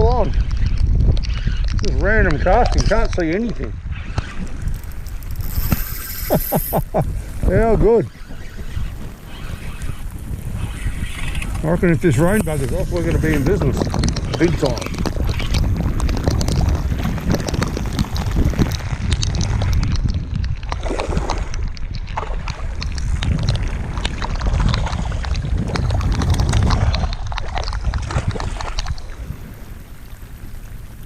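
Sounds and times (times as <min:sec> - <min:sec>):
wind buffeting microphone: 0:00.0 - 0:31.0
raindrops pattering: 0:09.1 - 0:20.2.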